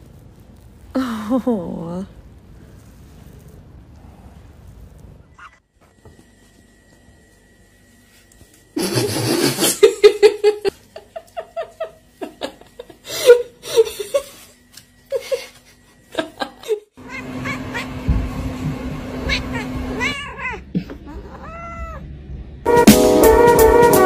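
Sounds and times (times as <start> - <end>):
person laughing: 1.0 - 1.8, 8.8 - 14.5, 15.1 - 16.9.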